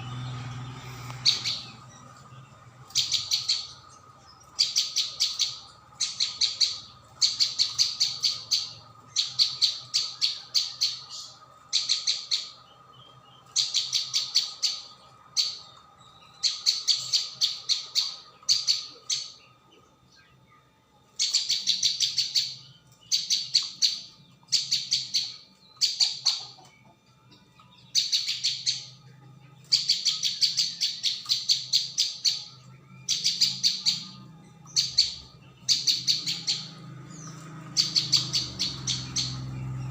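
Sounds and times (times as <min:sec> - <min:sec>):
bird chirping fast and sharp: 0:00.0 - 0:19.4, 0:29.7 - 0:39.9.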